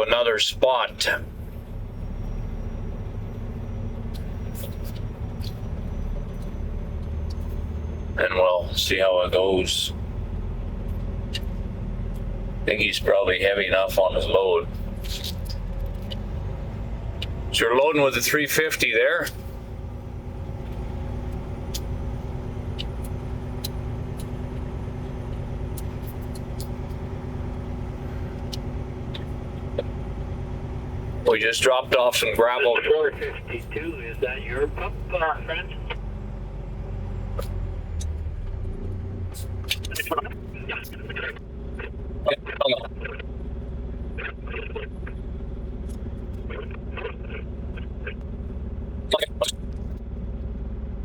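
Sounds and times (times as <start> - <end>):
diesel engine running: 0.0 - 51.0.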